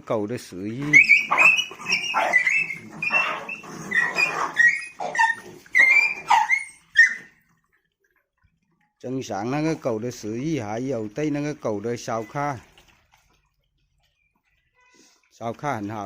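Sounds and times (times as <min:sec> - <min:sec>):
dogs whining and yelping: 0:00.8 - 0:07.7.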